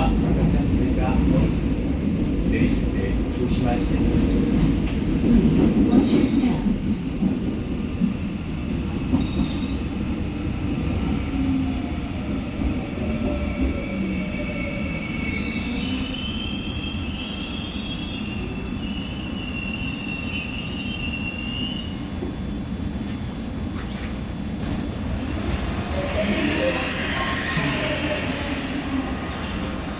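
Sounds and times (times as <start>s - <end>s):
high wheel squeal: 26.0s - 29.4s.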